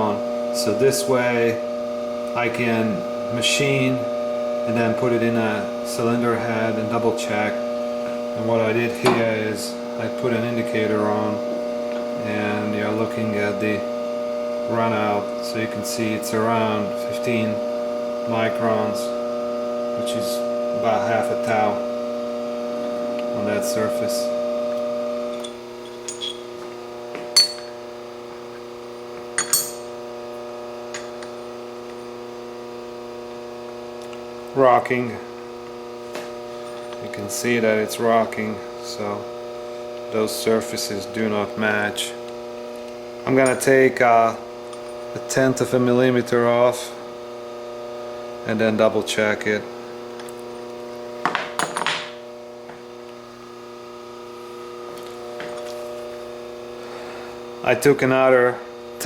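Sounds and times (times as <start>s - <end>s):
steady electrical hum: 0.0s - 59.0s
metal part clinking: 25.4s - 26.5s, 27.4s - 27.8s, 29.4s - 29.9s.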